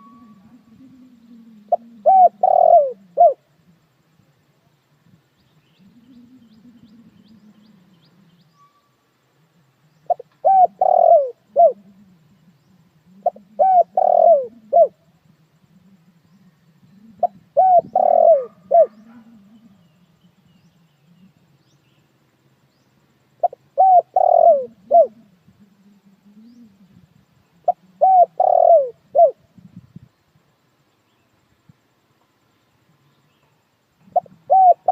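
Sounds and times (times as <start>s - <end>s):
dove cooing: 0.0s - 3.8s, 5.7s - 8.5s, 9.9s - 21.5s, 23.4s - 29.5s, 34.0s - 34.9s.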